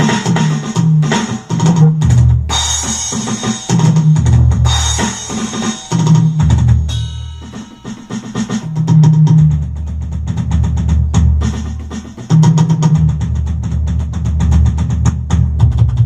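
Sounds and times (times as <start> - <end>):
electronic drum beat: 0.0 - 16.0
low bass notes: 1.7 - 2.6, 6.2 - 7.6, 8.6 - 11.6.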